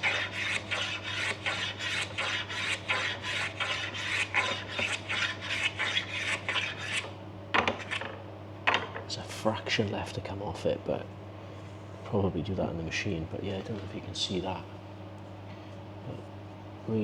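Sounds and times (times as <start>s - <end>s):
hand plane scraping wood: 0.0s - 8.0s
steady low hum: 0.0s - 17.0s.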